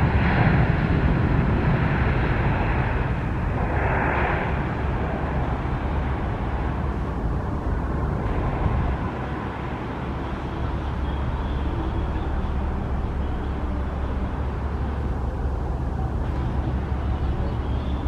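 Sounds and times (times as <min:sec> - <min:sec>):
distant jet engines rumbling: 0:00.0 - 0:18.0
faint high whine: 0:01.6 - 0:18.0.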